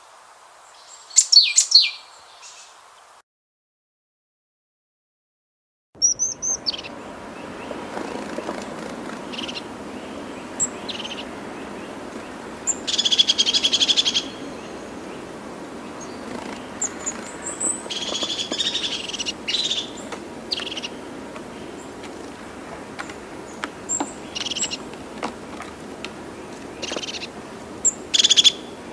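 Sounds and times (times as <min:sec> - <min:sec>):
background hiss: 0:00.0 - 0:03.2, 0:06.2 - 0:28.9
bird chirps: 0:00.7 - 0:02.7, 0:06.0 - 0:15.2, 0:15.8 - 0:22.0, 0:23.0 - 0:24.9, 0:26.3 - 0:28.8
bird rattling trills: 0:06.0 - 0:28.9.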